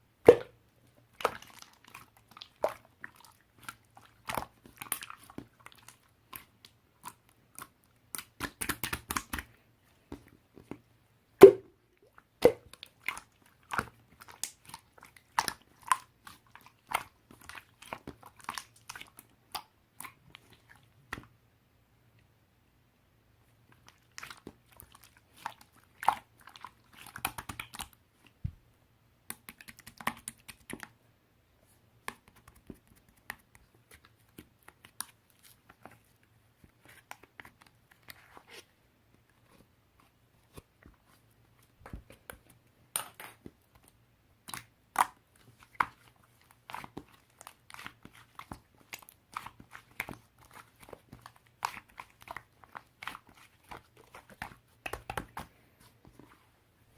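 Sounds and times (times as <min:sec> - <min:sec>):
chewing and crunching: 0:01.2 - 0:08.5, 0:12.0 - 0:20.9, 0:42.0 - 0:55.8.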